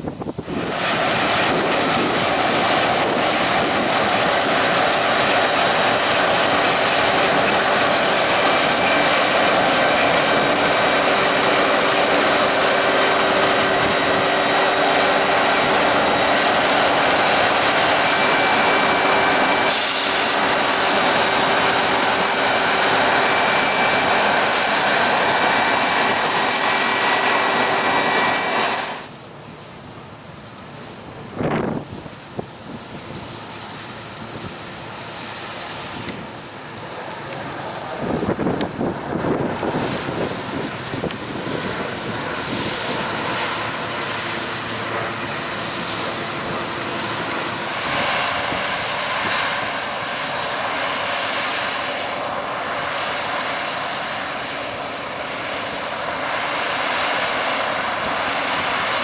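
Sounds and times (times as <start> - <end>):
combine harvester running: 0.0 - 59.0
thin high whine: 0.1 - 30.2.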